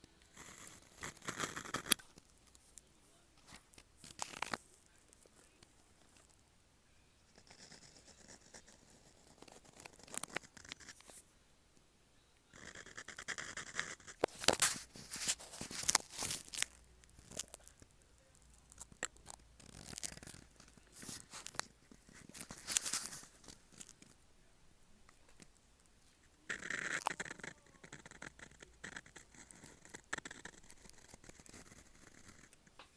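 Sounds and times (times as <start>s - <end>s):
pen nib scratching on paper: 0.2s - 2.2s, 7.3s - 11.2s, 12.6s - 24.2s, 26.4s - 32.7s.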